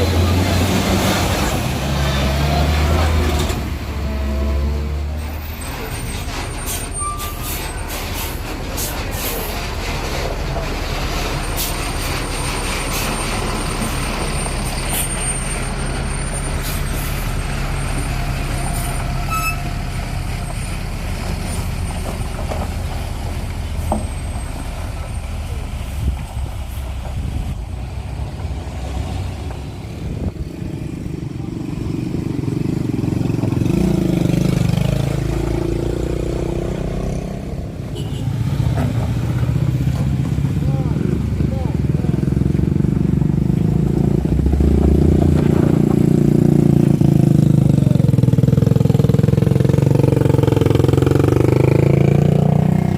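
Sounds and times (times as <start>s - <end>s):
vehicle engine labouring uphill: 0.0s - 52.9s
thin high whistle: 19.2s - 19.7s.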